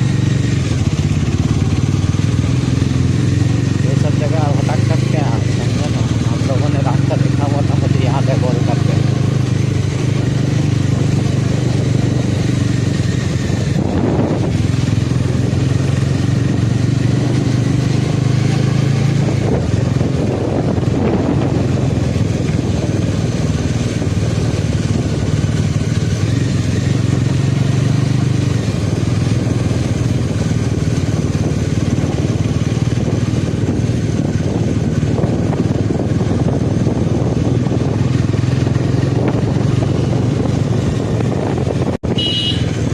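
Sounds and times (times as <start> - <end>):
motorcycle engine running: 0.0 - 42.9
wind and road noise: 0.0 - 42.9.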